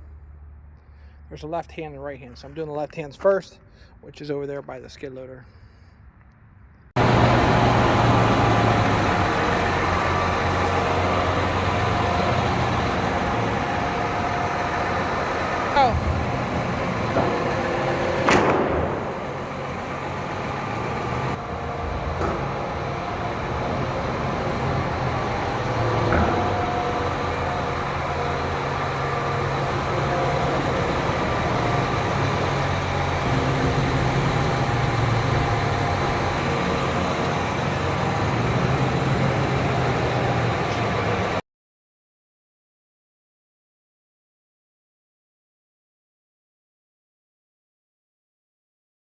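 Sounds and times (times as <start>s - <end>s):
engine running with low hum: 7.0s - 41.4s.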